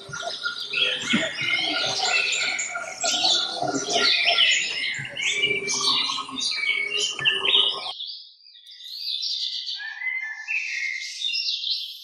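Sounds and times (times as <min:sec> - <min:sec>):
songbirds chirping and warbling: 0:00.0 - 0:12.0.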